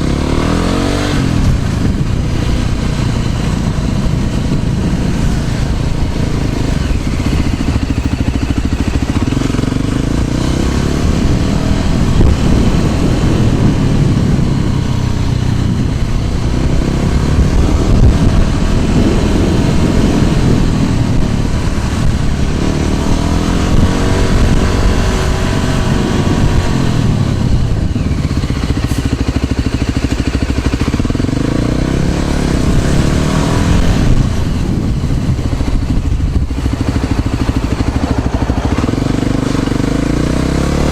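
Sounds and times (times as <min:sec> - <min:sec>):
scooter engine revving: 0:00.0 - 0:40.9
wind rush on microphone: 0:00.0 - 0:40.9.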